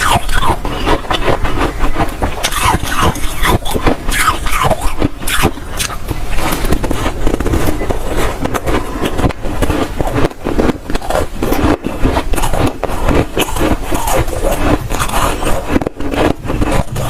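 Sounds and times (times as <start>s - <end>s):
frost being chewed crunching: 0.0s - 17.0s.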